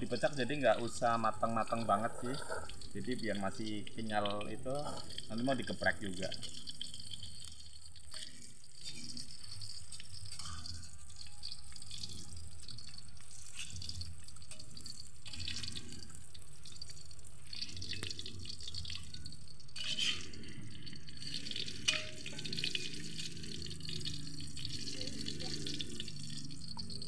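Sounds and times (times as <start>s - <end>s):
tofu sizzling and crackling: 0.0s - 27.0s
metal spatula in wok: 6.4s - 27.0s.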